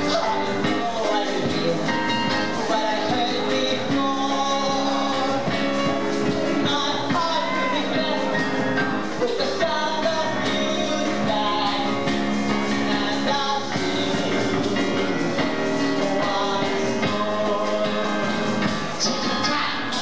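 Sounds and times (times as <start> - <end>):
live stage music: 0.0 - 20.0.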